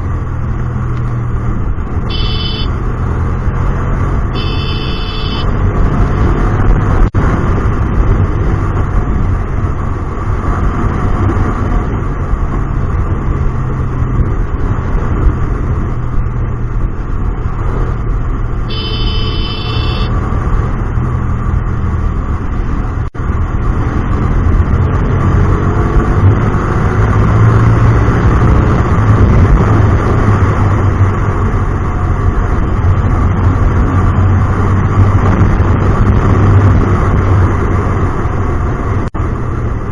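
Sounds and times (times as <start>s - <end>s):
motorcycle engine running: 0.0s - 10.1s, 10.7s - 21.0s.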